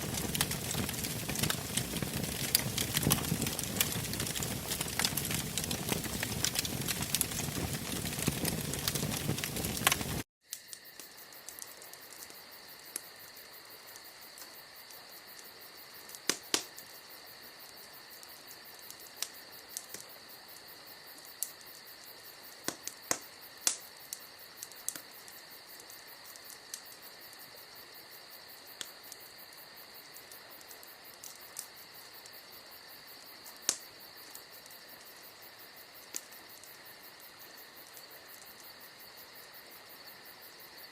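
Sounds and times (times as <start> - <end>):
fire popping sharply: 0.0 - 10.2
bonfire crackling: 0.0 - 40.9
crickets chirping: 0.0 - 40.9.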